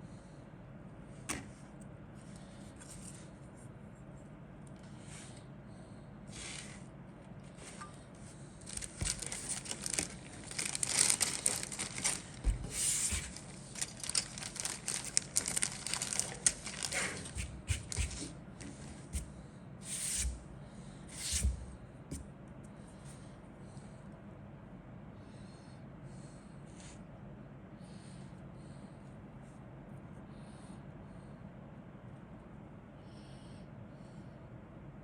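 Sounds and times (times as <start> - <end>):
plastic packaging crinkling: 8.6 - 18.2.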